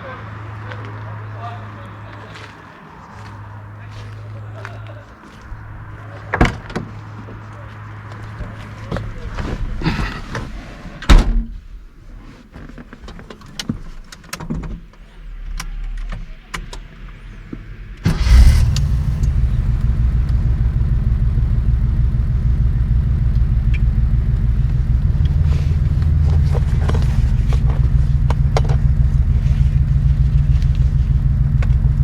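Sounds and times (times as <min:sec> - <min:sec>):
car engine starting and idling: 0:05.4 - 0:08.7, 0:15.0 - 0:32.0
car door shutting: 0:23.7 - 0:31.9.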